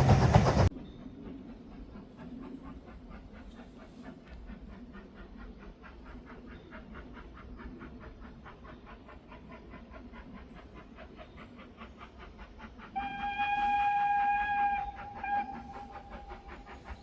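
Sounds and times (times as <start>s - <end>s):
steam locomotive chuffing: 0.0s - 17.0s
steam whistle: 13.0s - 16.3s.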